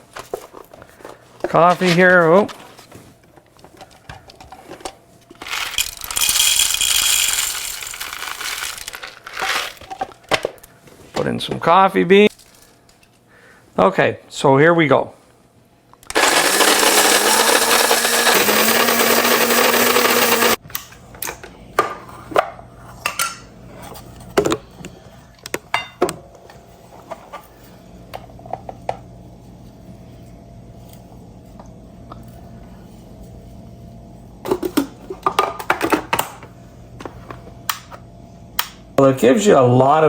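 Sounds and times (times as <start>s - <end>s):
coffee grinder motor grinding beans: 5.4s - 9.9s, 16.0s - 20.6s.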